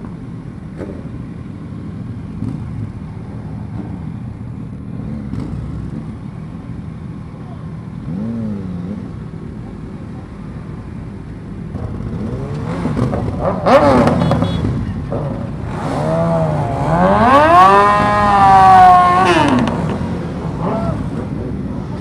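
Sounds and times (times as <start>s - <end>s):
motorcycle engine revving: 8.0s - 9.4s, 11.7s - 22.0s.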